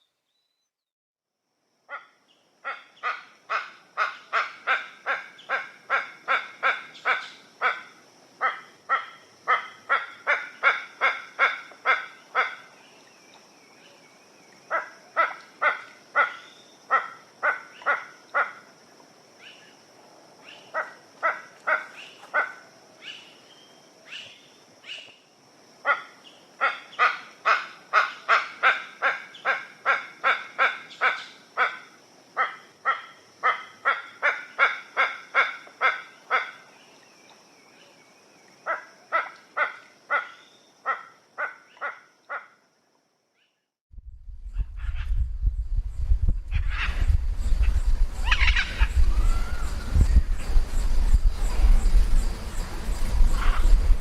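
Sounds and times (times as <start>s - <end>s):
bird calling harsh notes: 46.5s - 50.5s.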